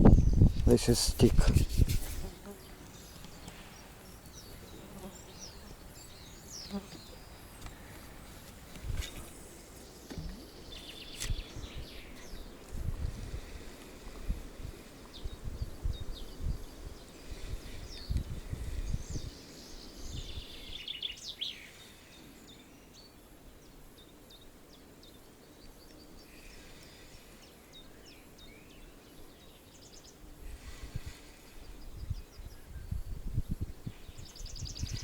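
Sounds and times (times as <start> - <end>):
wind buffeting microphone: 0.0 - 4.8, 10.2 - 19.4, 20.0 - 20.7, 30.4 - 35.0
songbirds chirping and singing: 2.4 - 8.1.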